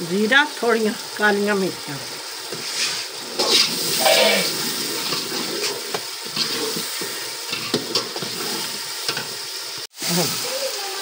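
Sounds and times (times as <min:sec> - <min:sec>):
masala sizzling and bubbling: 0:00.0 - 0:11.0
metal spoon scraping a pot: 0:02.5 - 0:09.3.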